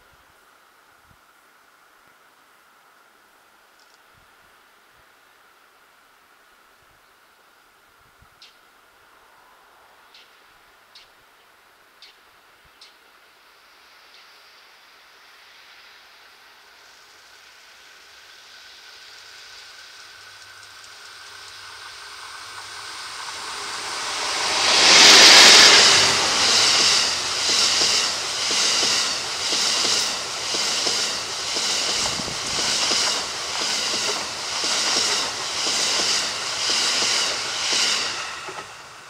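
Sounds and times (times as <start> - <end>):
electric locomotive passing: 14.8 - 39.0
rhythmic clatter of train wheels: 16.7 - 39.0.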